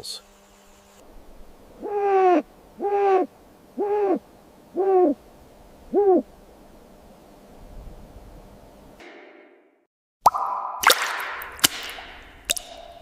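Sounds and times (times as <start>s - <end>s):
hooting calls: 1.7s - 6.5s.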